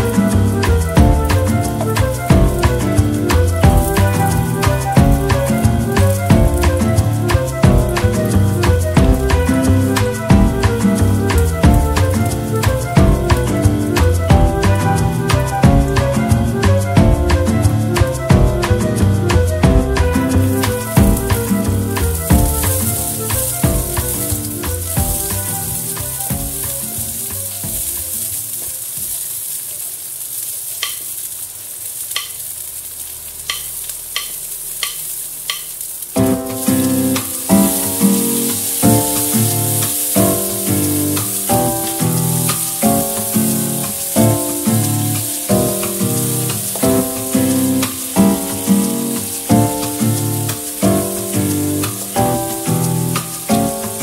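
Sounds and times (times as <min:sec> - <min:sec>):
background music: 0:00.0 - 0:28.6, 0:36.2 - 0:54.0
onions sizzling in oil: 0:00.0 - 0:54.0
spatula clicking against pan: 0:30.8 - 0:31.3, 0:32.1 - 0:32.5, 0:33.5 - 0:35.8.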